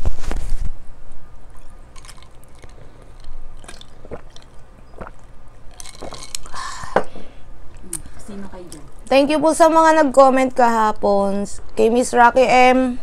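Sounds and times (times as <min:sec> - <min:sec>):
chewing with wet smacks: 0:01.5 - 0:06.6, 0:07.7 - 0:09.2.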